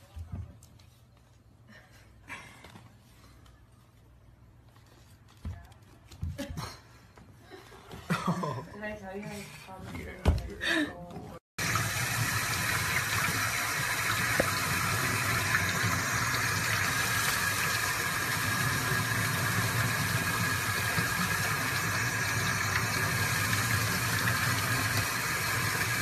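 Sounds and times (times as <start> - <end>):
tap water running and splashing: 11.6 - 26.0.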